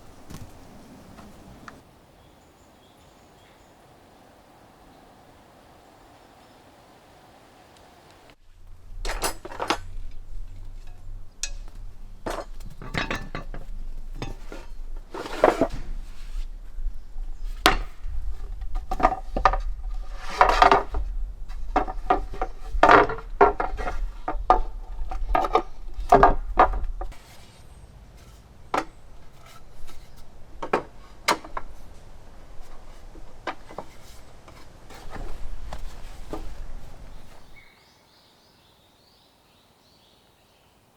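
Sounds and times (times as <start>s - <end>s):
low steady hum: 7.6s - 37.6s
metal cookware knocking and clinking: 10.8s - 14.6s.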